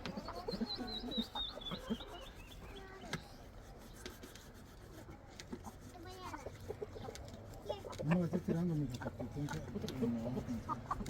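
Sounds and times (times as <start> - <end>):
chickens clucking: 0.0 - 3.2, 5.4 - 11.0.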